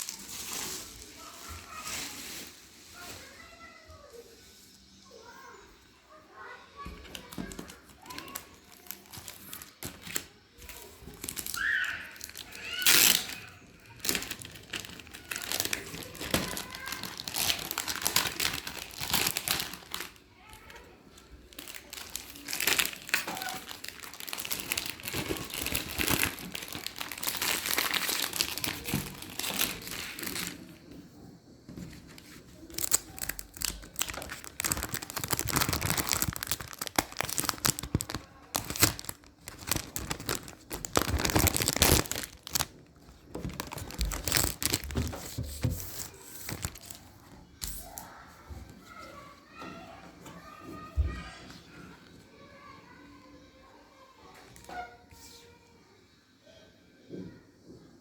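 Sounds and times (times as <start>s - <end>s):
packaging crinkling and tearing: 0.0s - 3.5s, 6.9s - 20.8s, 21.5s - 30.8s, 31.8s - 48.1s.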